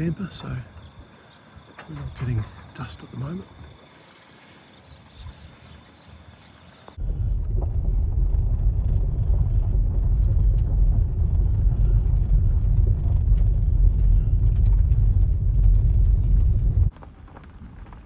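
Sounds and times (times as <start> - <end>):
loud low rumble: 7.0 - 16.9.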